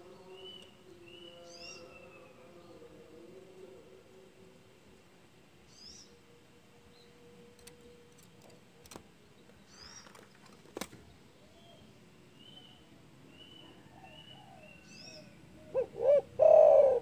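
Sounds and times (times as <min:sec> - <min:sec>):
small birds chirping: 0:05.6 - 0:06.2, 0:06.9 - 0:16.0.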